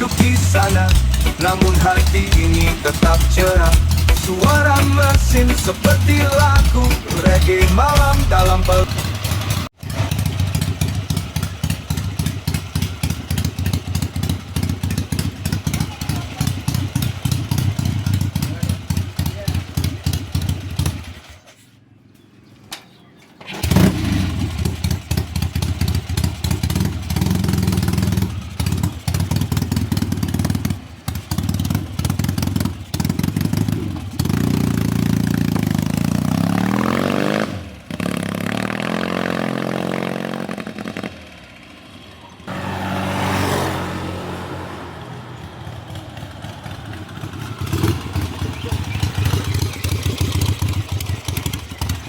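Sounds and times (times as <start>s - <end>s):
motorcycle engine revving: 0.0s - 21.7s, 23.4s - 52.0s.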